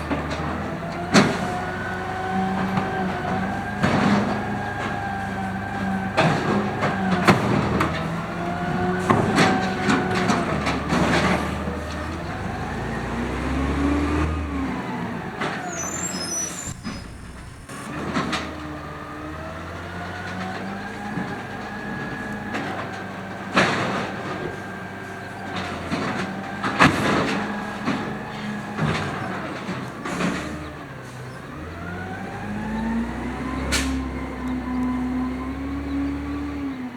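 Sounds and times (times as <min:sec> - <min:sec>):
cart slamming against hopper: 0:00.0 - 0:12.8, 0:22.5 - 0:30.9, 0:33.6 - 0:34.1
truck engine revving: 0:00.0 - 0:36.9
high squeal: 0:15.6 - 0:18.1.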